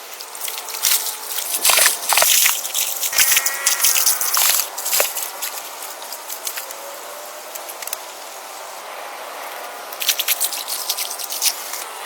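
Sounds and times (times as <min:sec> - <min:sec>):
outdoor background hiss: 0:00.0 - 0:12.0
sharp clicks and crackles: 0:00.1 - 0:06.8, 0:09.9 - 0:11.9.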